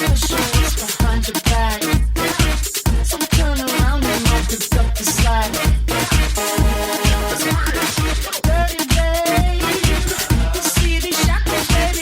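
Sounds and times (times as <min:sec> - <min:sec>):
kick drum beat: 0:00.0 - 0:12.0
synth melody: 0:06.4 - 0:08.2.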